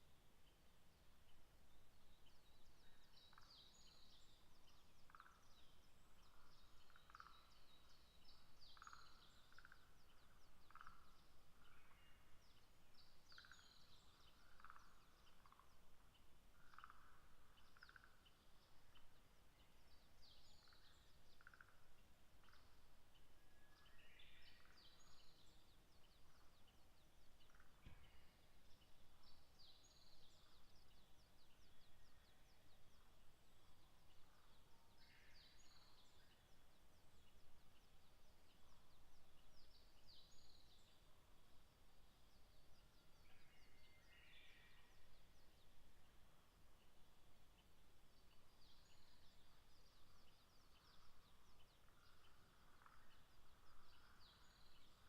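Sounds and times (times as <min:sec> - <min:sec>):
songbirds singing: 0:00.0 - 0:55.0
faint knock: 0:27.8 - 0:28.1.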